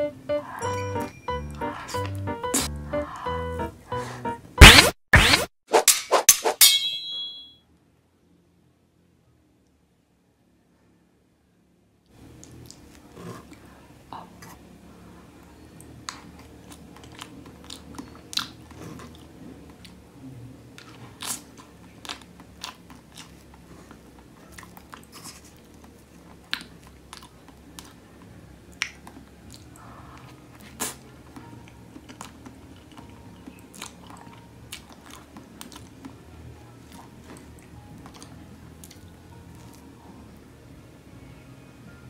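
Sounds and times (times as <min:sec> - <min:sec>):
chewing soft cake: 0:12.1 - 0:40.5.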